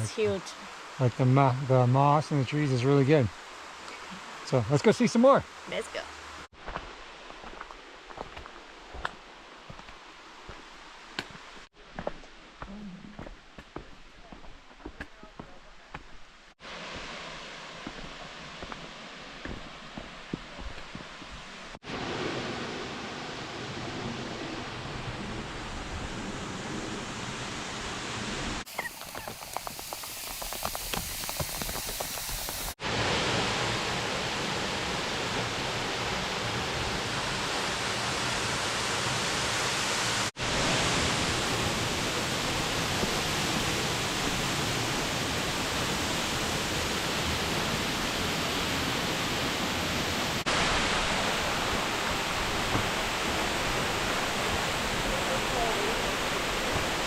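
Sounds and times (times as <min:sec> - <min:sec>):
waterfall rushing: 0:28.6 - 0:57.0.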